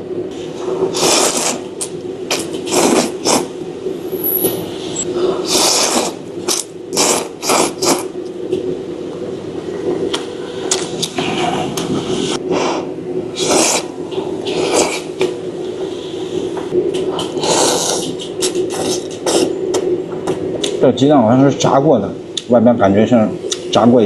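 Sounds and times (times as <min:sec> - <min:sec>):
person slurping noodles: 0:00.9 - 0:03.5, 0:04.4 - 0:08.1, 0:13.4 - 0:15.2, 0:17.3 - 0:19.6.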